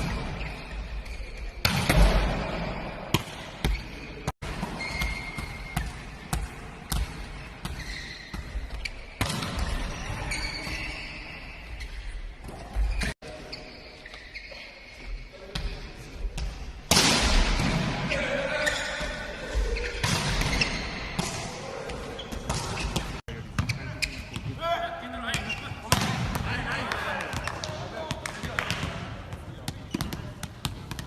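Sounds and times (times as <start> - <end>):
volleyballs struck and bouncing: 1.6 - 10.1, 25.4 - 31.0.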